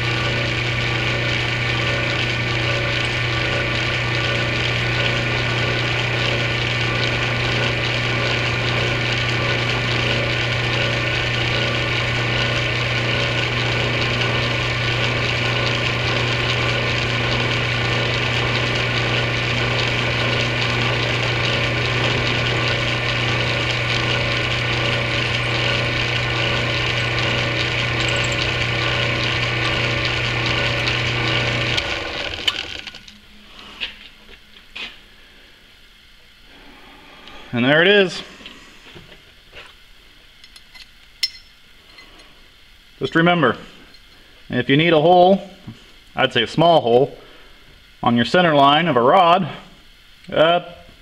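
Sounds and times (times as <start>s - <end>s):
drill bit boring metal rod: 0.0s - 32.9s
lathe motor humming: 0.0s - 39.2s.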